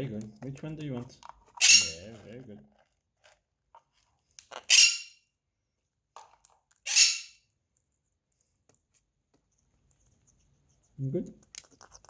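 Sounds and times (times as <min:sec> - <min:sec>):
parrot squawking: 0:01.6 - 0:02.0, 0:06.9 - 0:07.3.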